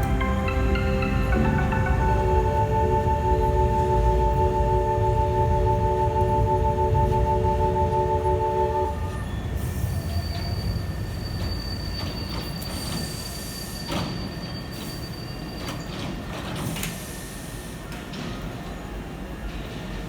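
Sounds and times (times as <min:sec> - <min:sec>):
departure melody: 0:00.0 - 0:09.3
steady high tone: 0:00.0 - 0:09.5
train rumble: 0:00.0 - 0:20.0.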